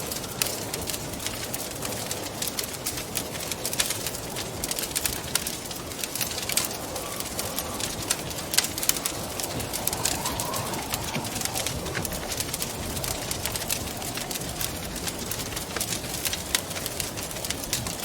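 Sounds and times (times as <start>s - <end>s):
wind: 0.0s - 18.0s
wood fire crackling and popping: 0.0s - 18.0s.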